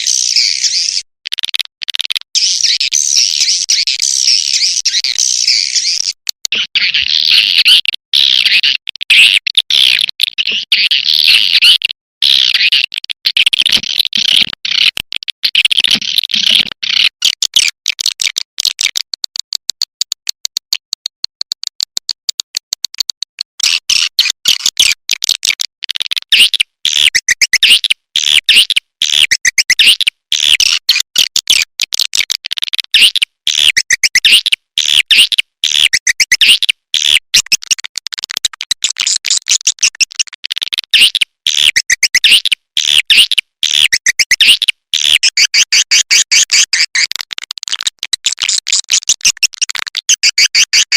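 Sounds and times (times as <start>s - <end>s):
swiftlet chirps and clicks: 17.2s - 25.0s, 26.3s - 31.7s, 32.9s - 50.9s.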